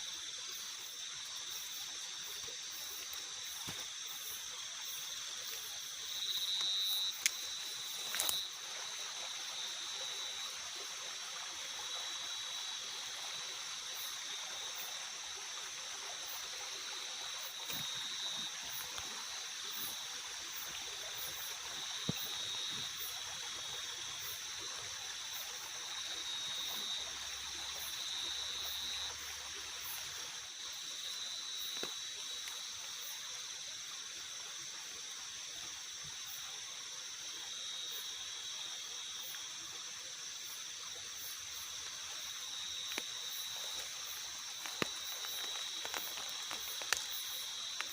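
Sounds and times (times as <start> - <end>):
watery hiss: 0.0 - 47.9.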